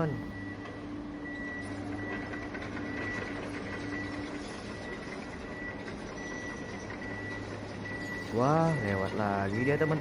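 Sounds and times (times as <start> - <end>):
high beep: 5.5 - 10.0.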